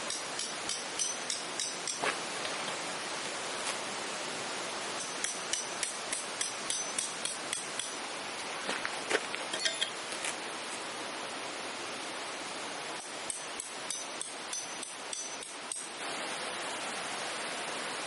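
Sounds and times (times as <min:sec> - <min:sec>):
hammer tapping metal tent peg: 0:00.1 - 0:02.0, 0:05.0 - 0:08.0, 0:13.0 - 0:15.9
ringing hammer blows: 0:13.0 - 0:15.9.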